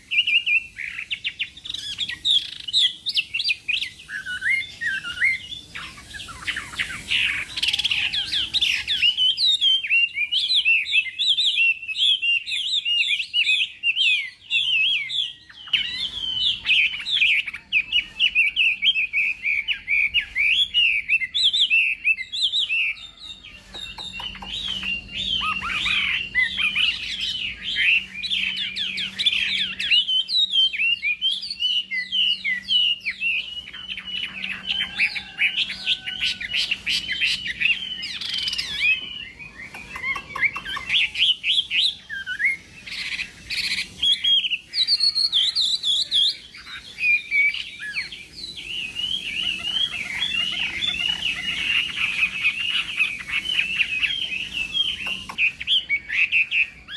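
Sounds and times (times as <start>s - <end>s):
bird singing whistled notes: 0.0s - 56.9s.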